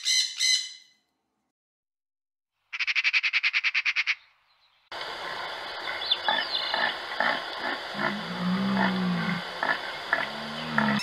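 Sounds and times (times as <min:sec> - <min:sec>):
deer stag roaring: 0:07.9 - 0:09.5, 0:10.1 - 0:11.0.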